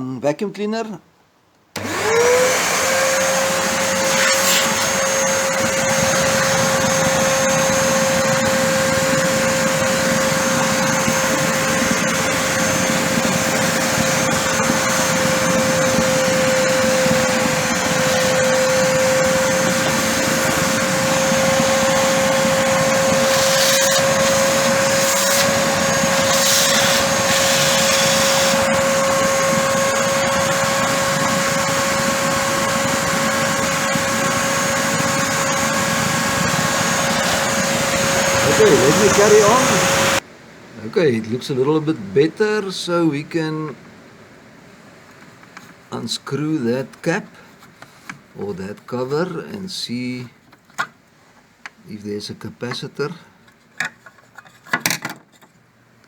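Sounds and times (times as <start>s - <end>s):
vacuum cleaner motor whine: 1.8s - 40.2s.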